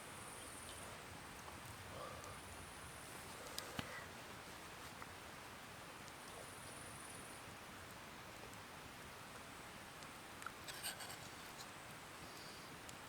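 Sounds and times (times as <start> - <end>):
faint outdoor background hiss: 0.0 - 13.0
small clicks and rustles: 3.2 - 5.2, 10.0 - 13.0.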